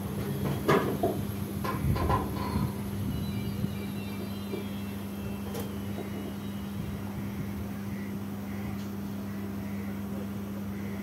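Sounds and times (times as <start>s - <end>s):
standing train humming: 0.0s - 11.0s.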